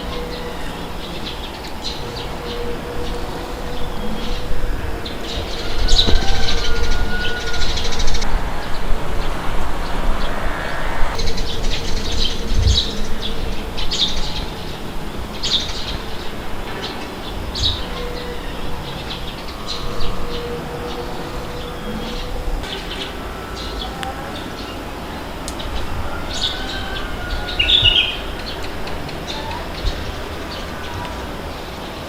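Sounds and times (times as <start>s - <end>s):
wind blowing: 0.0s - 32.0s.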